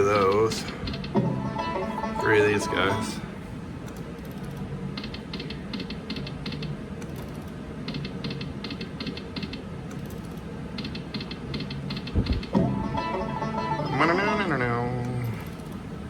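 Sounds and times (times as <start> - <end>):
slot machine ticking: 0.0 - 3.2
low casino hum: 0.0 - 16.0.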